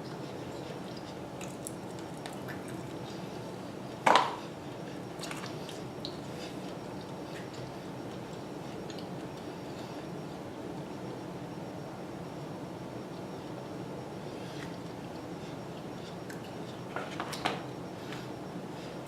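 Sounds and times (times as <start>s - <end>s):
air conditioner hiss: 0.0s - 19.0s.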